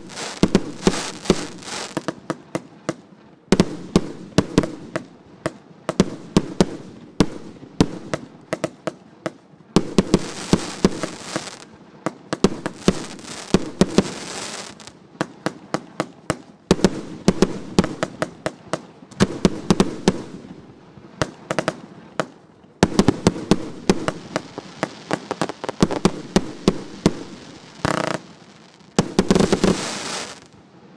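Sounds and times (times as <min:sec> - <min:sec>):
firework crackling hiss: 0:00.0 - 0:02.2, 0:10.0 - 0:11.7, 0:12.3 - 0:15.0, 0:22.8 - 0:30.6
firework sharp bangs: 0:00.0 - 0:03.0, 0:03.6 - 0:30.6.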